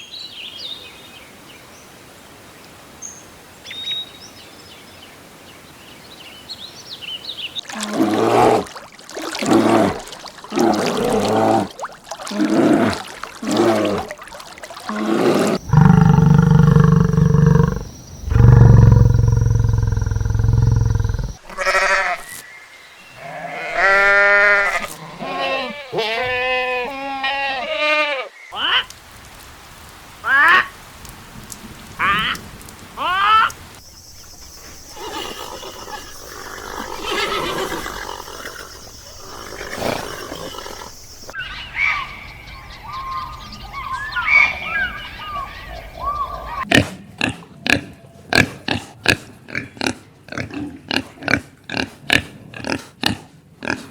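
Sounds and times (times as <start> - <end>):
loud deep animal call: 14.9 - 22.2
repeated pitched animal calls: 14.9 - 22.4
background haze: 15.2 - 21.4.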